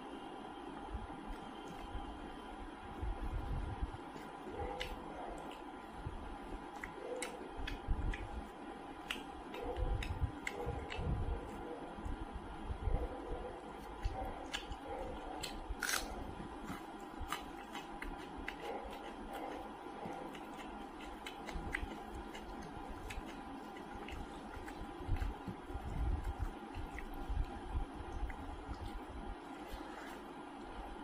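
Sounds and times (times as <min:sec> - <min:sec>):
faint steady hum: 0:00.0 - 0:31.0
fingers squishing rice: 0:01.2 - 0:12.2, 0:13.6 - 0:31.0
chewing and wet mouth clicks: 0:06.7 - 0:11.2, 0:14.0 - 0:16.1, 0:20.2 - 0:29.0.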